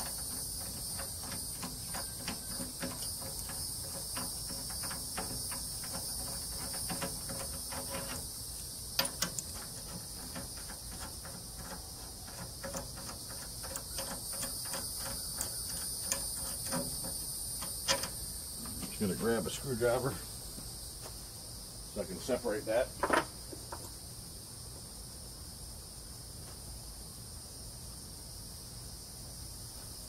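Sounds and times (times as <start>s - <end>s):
light clicks and knocks: 0.0s - 8.3s, 8.9s - 19.6s, 23.0s - 23.9s
insects chirring: 0.0s - 30.0s.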